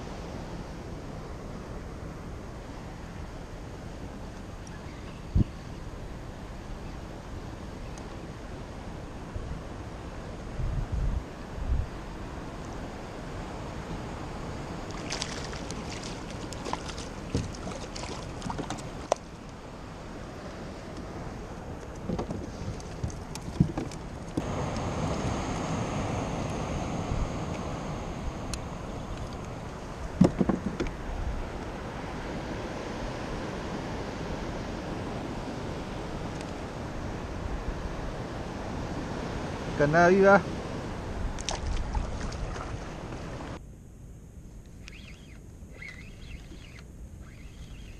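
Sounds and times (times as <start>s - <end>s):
wind on microphone: 0.0s - 43.6s
water sloshing against hull: 14.2s - 32.5s, 40.5s - 43.6s.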